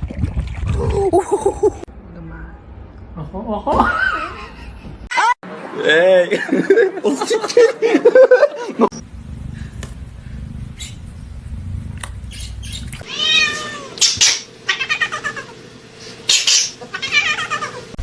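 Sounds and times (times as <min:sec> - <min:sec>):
low rumbling noise: 0:09.0 - 0:13.0
cat meowing: 0:13.0 - 0:14.0, 0:14.7 - 0:15.5, 0:16.9 - 0:17.8.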